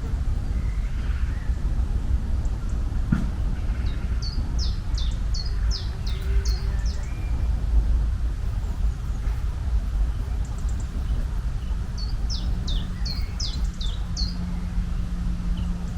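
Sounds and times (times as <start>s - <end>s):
low outdoor rumble: 0.0s - 15.9s
small bird chirping: 3.7s - 7.6s, 10.0s - 14.8s.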